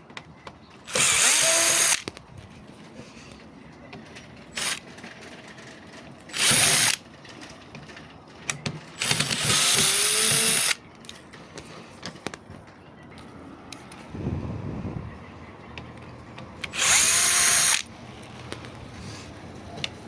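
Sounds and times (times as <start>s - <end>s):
power tool bursts: 0.9s - 2.0s, 6.3s - 7.0s, 16.7s - 17.9s.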